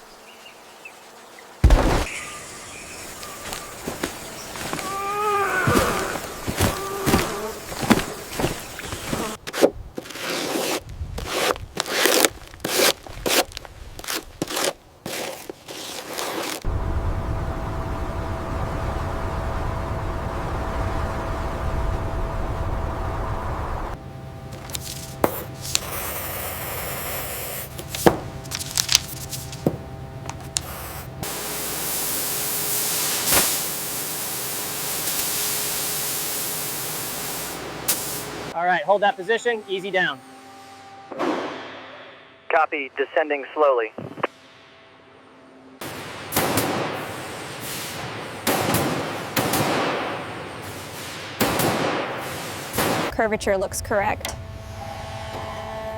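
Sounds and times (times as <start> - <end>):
crunching and scraping: 5.6 - 16.8, 24.4 - 32.4
low steady hum: 16.6 - 41.0, 53.1 - 55.9
spraying hiss: 24.5 - 38.6.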